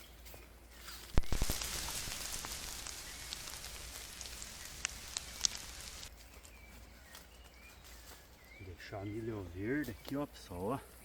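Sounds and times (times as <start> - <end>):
dry rustling and crackling: 0.9 - 8.4
sharp snaps: 1.1 - 6.1.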